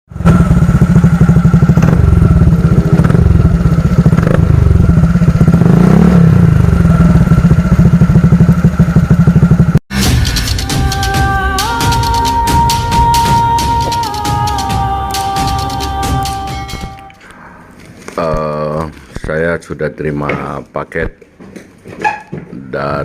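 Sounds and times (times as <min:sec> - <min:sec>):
scooter engine idling: 0:00.1 - 0:09.8
music: 0:09.9 - 0:17.2.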